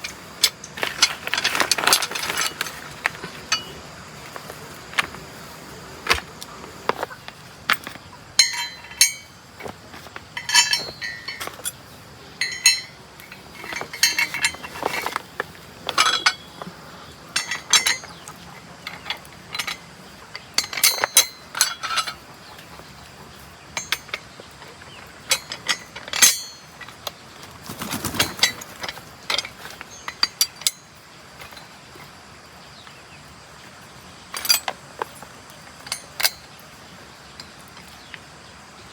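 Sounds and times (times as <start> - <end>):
metal tools clinking: 0.0 - 32.2, 34.2 - 38.2
sharp ringing metal clink: 8.4 - 9.4, 10.4 - 11.8, 12.4 - 13.0, 25.3 - 26.8.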